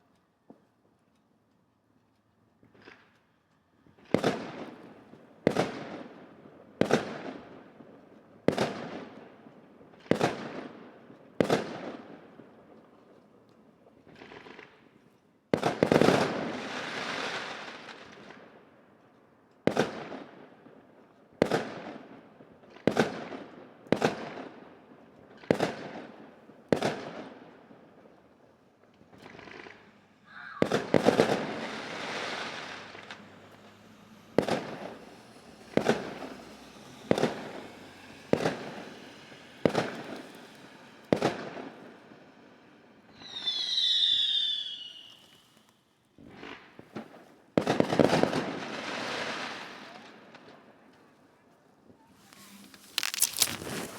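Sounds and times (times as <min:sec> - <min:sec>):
fireworks bangs echoing: 0:04.0 - 0:07.6, 0:29.0 - 0:43.6, 0:46.2 - 0:50.5
fireworks crackling: 0:04.0 - 0:12.4, 0:14.0 - 0:18.6, 0:21.4 - 0:53.9.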